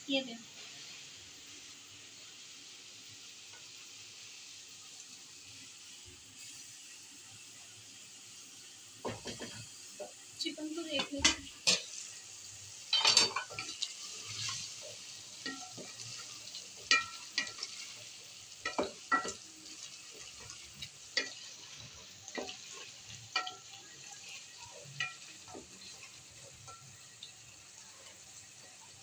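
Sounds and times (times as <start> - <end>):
food sizzling in pot: 0.0 - 29.0
spatula knocking and scraping pot: 18.6 - 19.4.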